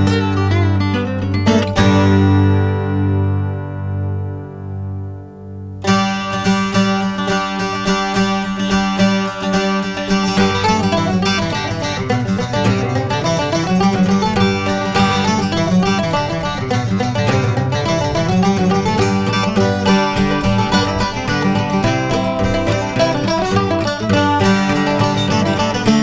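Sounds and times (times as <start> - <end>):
bluegrass plucked string music: 0.0 - 26.0
steady bass: 11.9 - 26.0.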